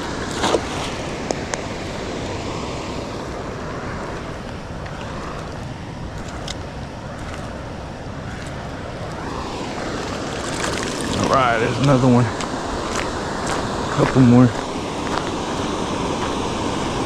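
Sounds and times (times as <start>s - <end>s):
waterfall rushing: 8.8s - 17.0s.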